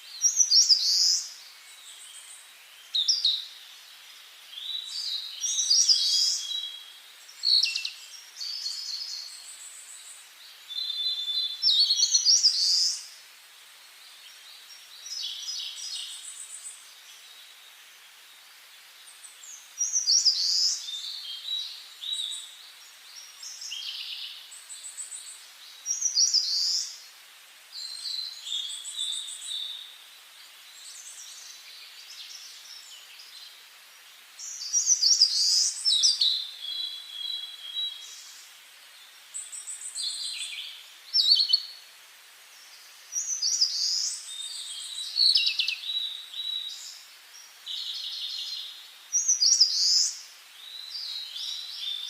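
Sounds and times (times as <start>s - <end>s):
songbird singing trills: 4.5s - 13.1s, 34.4s - 38.4s, 39.3s - 41.8s, 43.1s - 52.0s.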